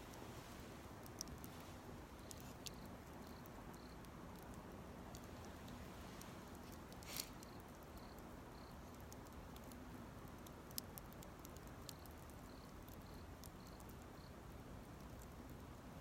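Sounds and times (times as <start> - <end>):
campfire crackling faintly: 0.0 - 16.0.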